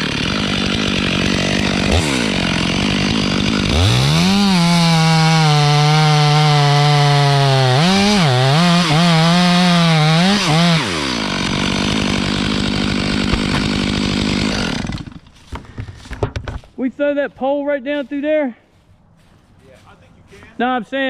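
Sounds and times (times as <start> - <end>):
chainsaw cutting wood: 0.0 - 16.8.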